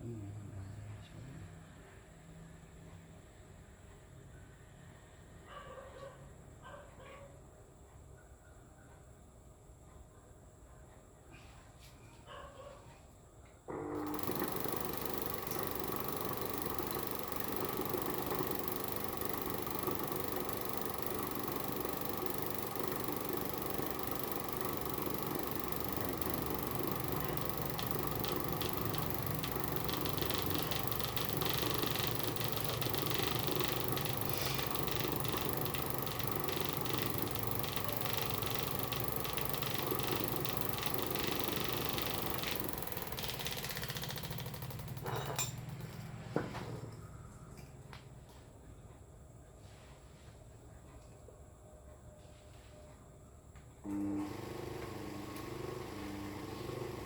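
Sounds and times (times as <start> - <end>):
small electric motor humming: 13.7 - 46.0.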